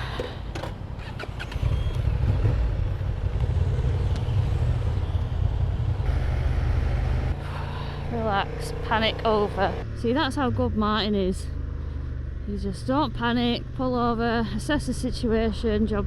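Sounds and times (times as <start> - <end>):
motorcycle engine at speed: 1.4 - 14.2.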